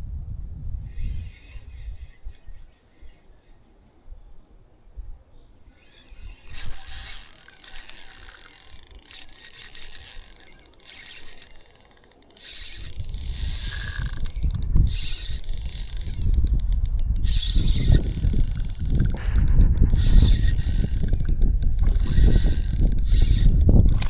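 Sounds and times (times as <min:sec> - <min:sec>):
hand mechanism clicking and whirring: 0:06.5 - 0:24.0.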